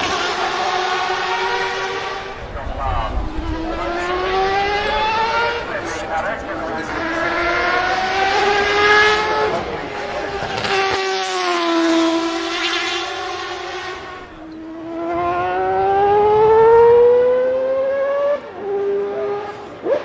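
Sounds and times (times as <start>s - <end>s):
race engine revving: 0.0s - 20.0s.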